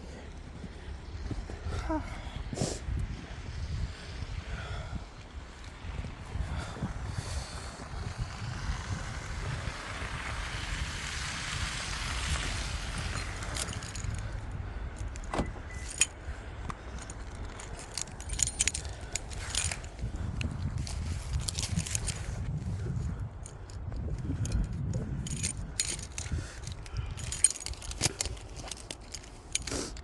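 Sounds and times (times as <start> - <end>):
steady low rumble: 0.0 - 30.0
car keys jangling: 13.0 - 22.3, 23.4 - 30.0.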